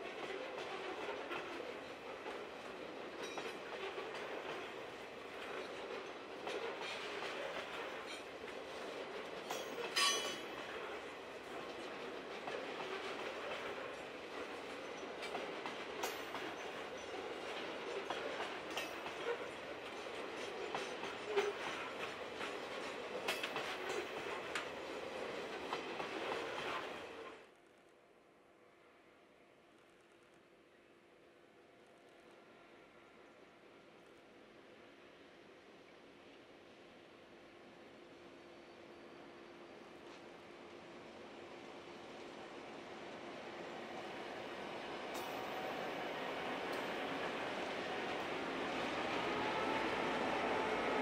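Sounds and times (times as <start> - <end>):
train wheels clattering: 0.1 - 27.2, 45.0 - 51.0.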